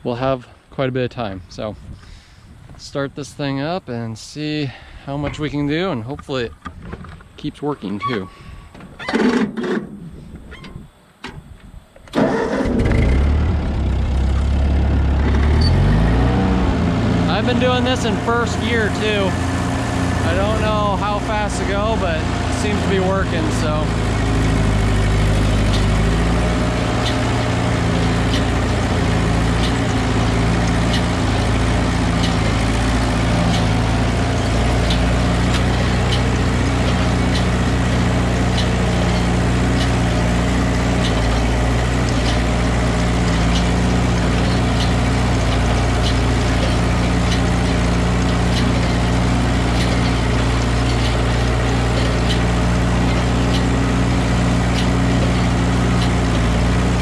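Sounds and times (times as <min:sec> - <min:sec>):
tractor engine running: 0:11.4 - 0:57.0.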